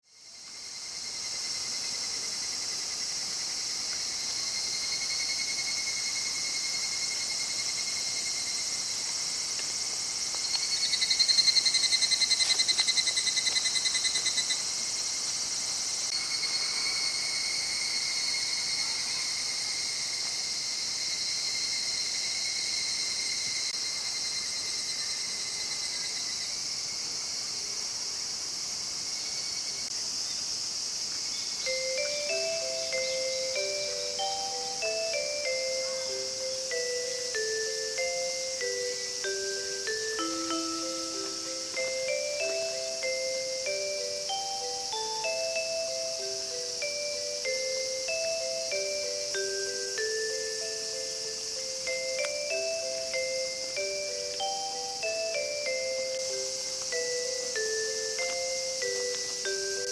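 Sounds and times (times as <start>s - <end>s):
insects buzzing and shrilling: 0.0s - 59.9s
pulsing insect trill: 0.0s - 59.9s.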